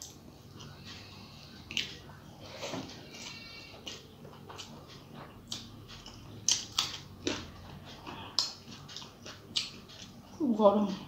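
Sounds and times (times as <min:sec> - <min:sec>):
chewing with wet clicks: 0:01.6 - 0:02.0, 0:03.2 - 0:10.3.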